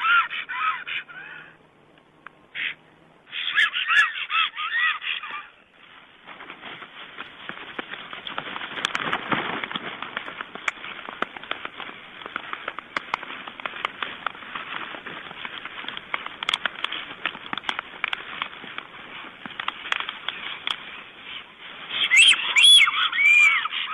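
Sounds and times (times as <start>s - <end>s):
stork clattering its bill: 6.3s - 23.9s.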